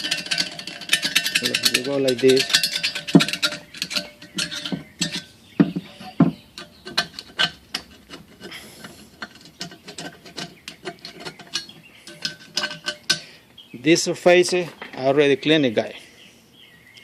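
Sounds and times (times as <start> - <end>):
screwdriver scraping carbon: 0.0 - 13.3.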